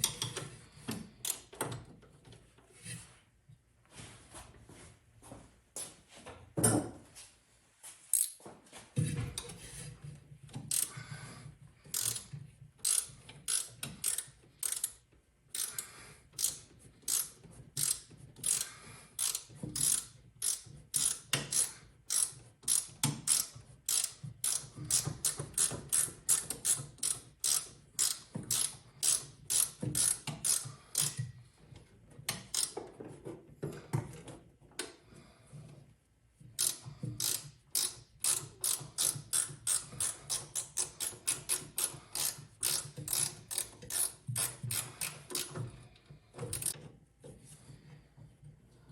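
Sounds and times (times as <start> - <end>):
ratchet wrench clicking: 0.0 - 0.4, 1.2 - 1.5, 8.1 - 8.4, 10.6 - 11.0, 11.9 - 31.2, 32.4 - 32.8, 36.6 - 45.6, 46.4 - 46.8.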